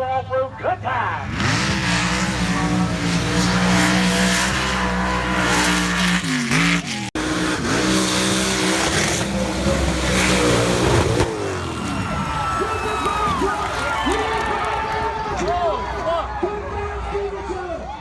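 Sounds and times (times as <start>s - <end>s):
truck engine revving high: 1.2s - 14.5s.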